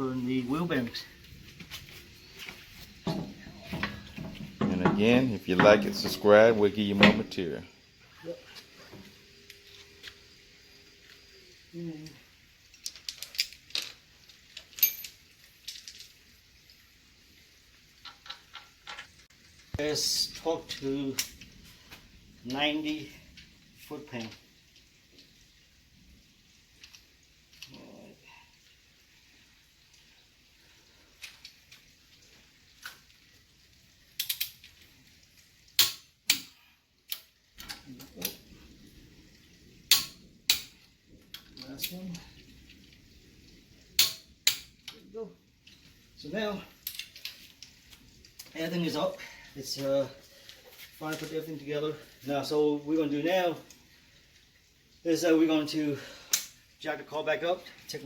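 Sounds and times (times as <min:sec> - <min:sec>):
metal tools clinking: 0:03.0 - 0:07.5, 0:12.9 - 0:16.2, 0:46.7 - 0:47.4
ringing metal clink: 0:14.8 - 0:15.2.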